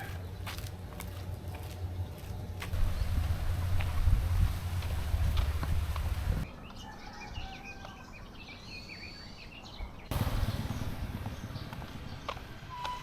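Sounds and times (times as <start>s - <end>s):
small birds chirping: 0.0s - 13.0s
low rumbling noise: 1.9s - 6.5s, 10.1s - 13.0s.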